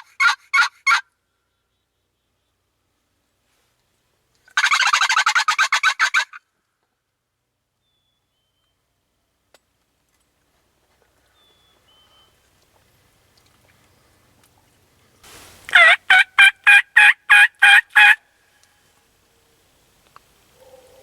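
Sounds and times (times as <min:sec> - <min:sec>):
turkey yelps: 0:00.0 - 0:01.1, 0:04.6 - 0:06.4, 0:15.7 - 0:18.2.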